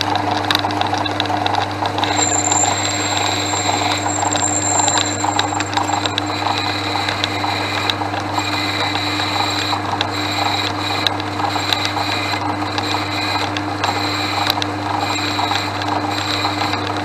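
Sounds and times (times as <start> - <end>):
lathe motor humming: 2.0 - 6.5
lathe cutting steel: 2.1 - 6.2.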